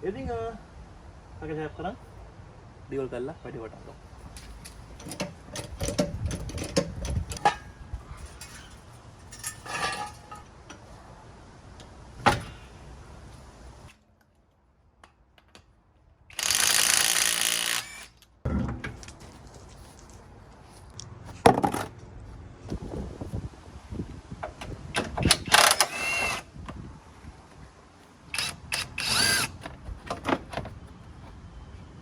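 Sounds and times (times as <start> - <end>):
metal tools clicking and clanking: 4.4 - 10.8.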